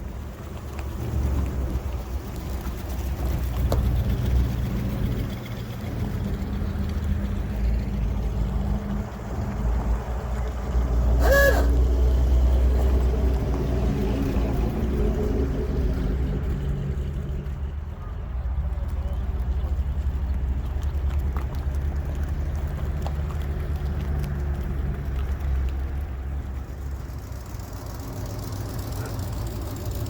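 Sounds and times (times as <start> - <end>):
cars rolling past: 0.0 - 30.0
short pitched call: 11.2 - 11.9.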